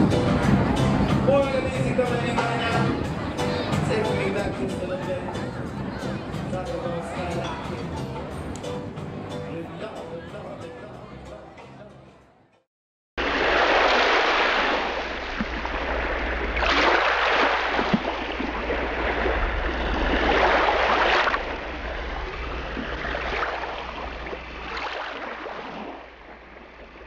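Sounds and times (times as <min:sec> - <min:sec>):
rushing water and waves: 0:00.0 - 0:07.9, 0:13.2 - 0:27.0
steady low rumble: 0:17.6 - 0:25.4.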